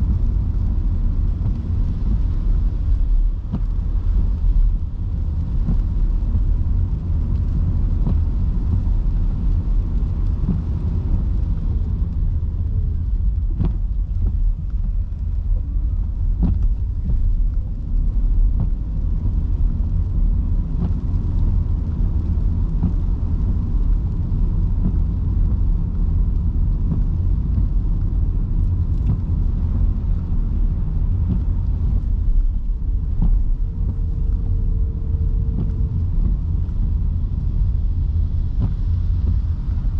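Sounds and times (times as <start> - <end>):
light rain ticks: 0.0 - 39.9
tyres rumbling on wet road: 0.0 - 39.9.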